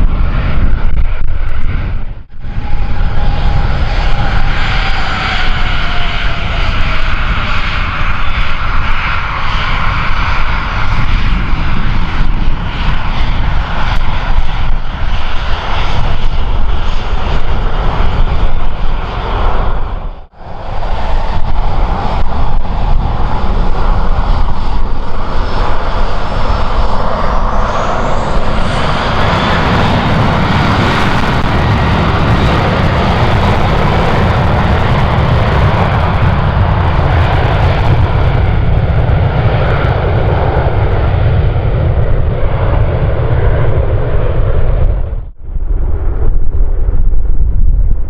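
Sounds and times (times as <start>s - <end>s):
airliner engines roaring: 0.0s - 48.0s
thin whine rising in pitch: 43.7s - 48.0s.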